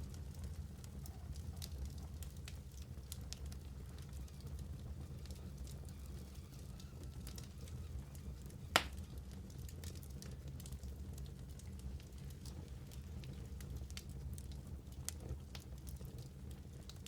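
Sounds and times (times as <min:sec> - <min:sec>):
wood fire crackling: 0:00.0 - 0:17.0
loud sharp pop: 0:08.8 - 0:09.0.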